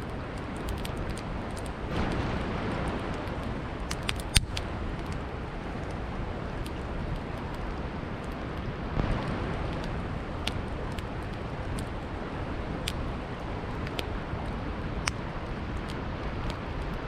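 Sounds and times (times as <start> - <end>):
campfire crackling and popping: 0.0 - 17.0
river water rushing: 0.0 - 17.0.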